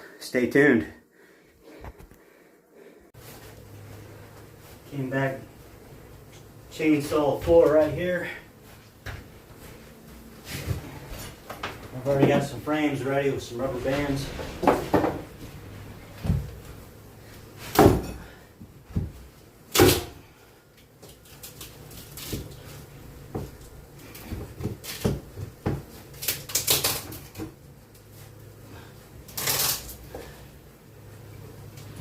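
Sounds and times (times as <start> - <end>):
rustling scrapes: 12.8 - 17.7
wooden knocks of hive frames: 14.6 - 15.3.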